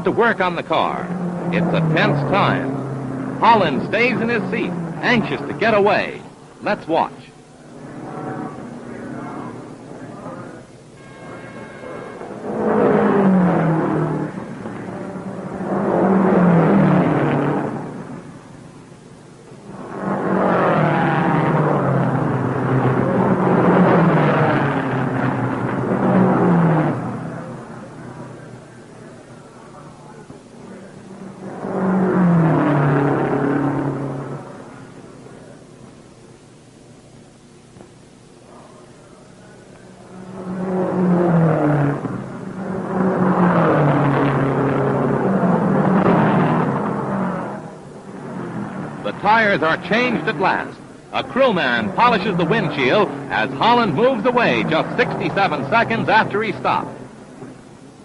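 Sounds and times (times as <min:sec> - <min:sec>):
racing car engines droning: 0:00.0 - 0:58.0.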